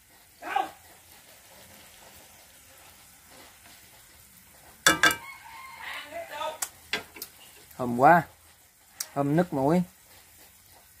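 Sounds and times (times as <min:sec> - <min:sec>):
utensil striking wok: 0:00.0 - 0:05.6, 0:06.6 - 0:09.2
faint sizzle in a wok: 0:00.0 - 0:11.0.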